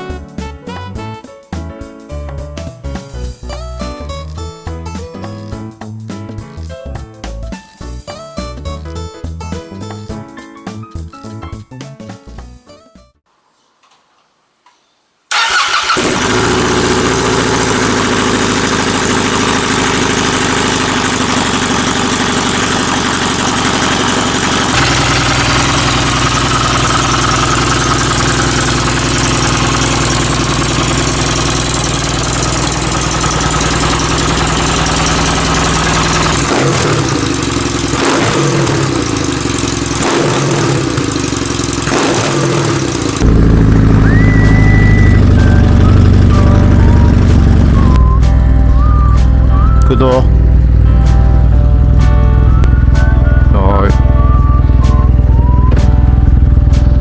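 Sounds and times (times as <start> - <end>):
motorcycle engine exhaust note: 15.3 - 57.0.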